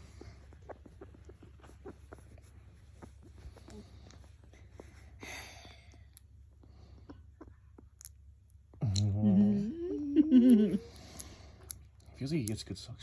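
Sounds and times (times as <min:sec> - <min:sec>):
low voice humming or cooing: 0:08.8 - 0:10.9.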